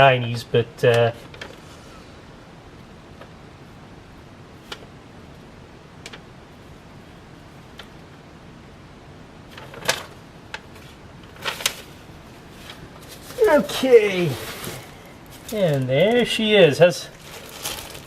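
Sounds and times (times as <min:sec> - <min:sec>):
packaging rustling knocks: 0:17.2 - 0:18.0.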